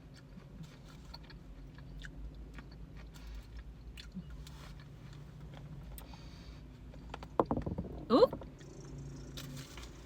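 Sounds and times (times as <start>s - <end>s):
chewing fruit: 0.0s - 6.1s.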